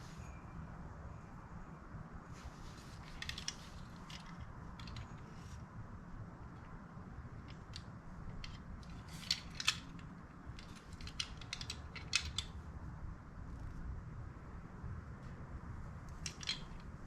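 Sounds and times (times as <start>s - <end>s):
metal parts and tools clicking: 2.7s - 5.6s, 7.4s - 12.6s, 16.1s - 17.0s.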